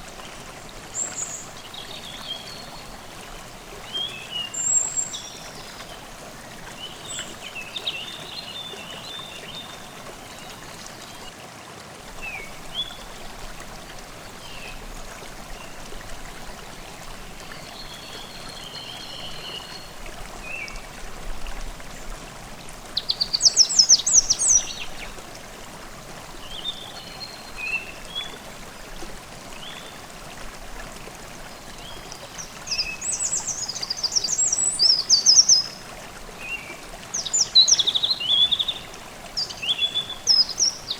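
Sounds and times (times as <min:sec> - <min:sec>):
stream babbling: 0:00.0 - 0:40.9
songbirds singing: 0:03.8 - 0:11.3, 0:22.9 - 0:25.2, 0:26.4 - 0:28.9, 0:31.6 - 0:35.8, 0:36.4 - 0:40.9.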